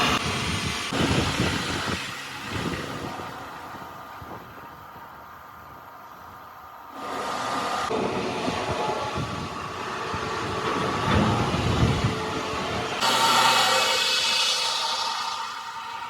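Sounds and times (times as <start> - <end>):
heavy machinery rumbling: 6.9 - 16.0.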